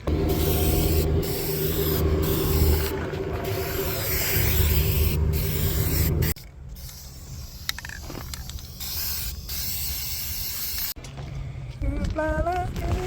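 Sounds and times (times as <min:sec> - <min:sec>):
low rumble: 0:00.0 - 0:06.4
paint spray hissing: 0:00.1 - 0:02.9, 0:03.5 - 0:11.0.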